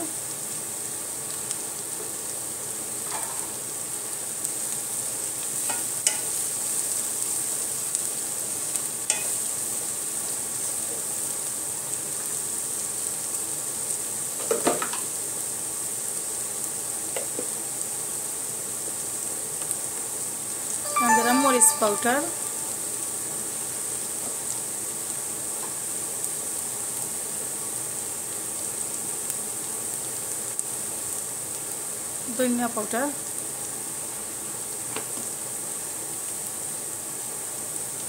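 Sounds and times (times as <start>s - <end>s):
paste sizzling in hot oil: 0.4s - 20.1s.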